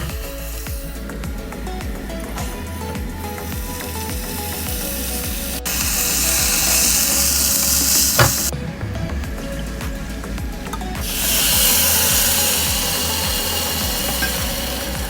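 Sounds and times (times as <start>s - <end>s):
soft background music: 0.0s - 15.0s
food sizzling in oil: 2.6s - 8.5s, 11.0s - 15.0s
knock: 8.2s - 8.5s.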